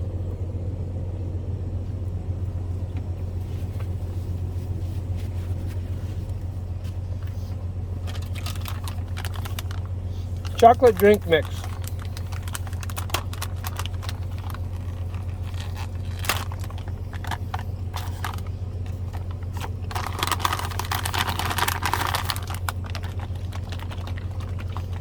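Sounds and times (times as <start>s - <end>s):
steady low hum: 0.0s - 25.0s
plastic pouch crinkling and tearing: 8.0s - 18.5s, 19.1s - 25.0s.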